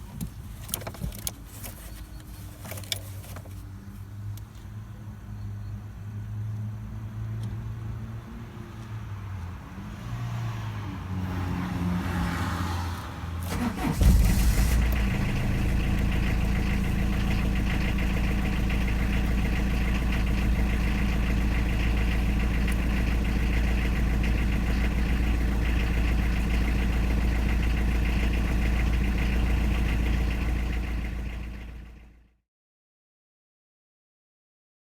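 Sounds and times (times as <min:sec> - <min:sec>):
diesel engine clattering: 0:13.4 - 0:32.2.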